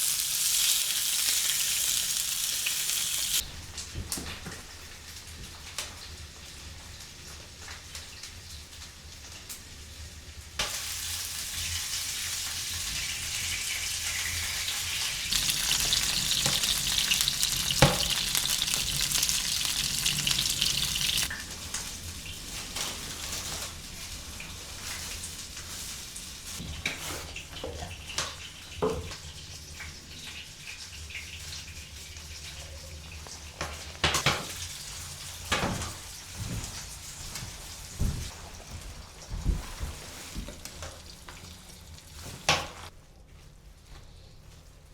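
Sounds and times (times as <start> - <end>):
steady sizzling hiss: 0.0 - 26.6.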